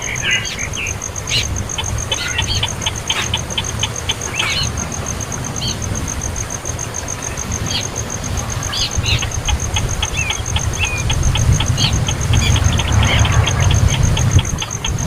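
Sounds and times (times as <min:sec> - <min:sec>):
baby bird chirping: 0:00.0 - 0:04.8, 0:08.7 - 0:15.0
pulsing insect chirp: 0:00.0 - 0:15.0
low rumble: 0:09.6 - 0:15.0.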